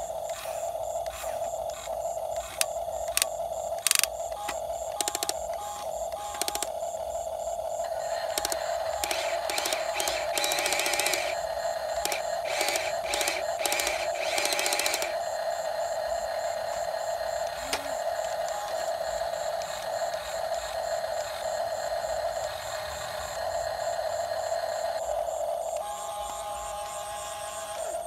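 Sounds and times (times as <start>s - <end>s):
pulsing bursts: 0.0s - 28.0s
toy electric motor whining: 0.0s - 28.0s
fast even ticking: 1.0s - 6.8s, 7.9s - 15.4s.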